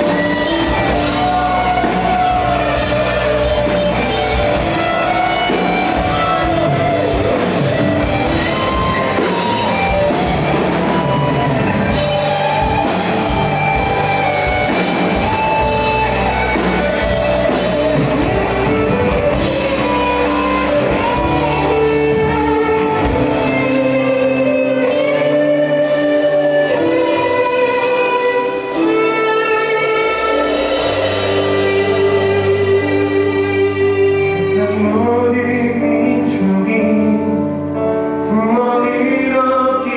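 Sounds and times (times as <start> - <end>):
drum kit: 0.0 - 37.8
bass guitar: 0.0 - 39.9
electric guitars: 0.0 - 39.9
keyboard chords: 0.0 - 39.9.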